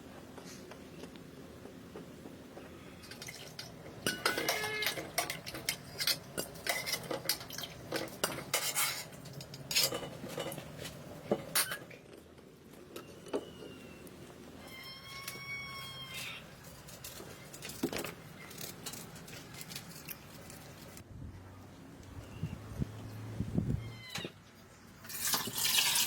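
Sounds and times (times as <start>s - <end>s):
cookware and utensils clattering: 3.0s - 12.1s.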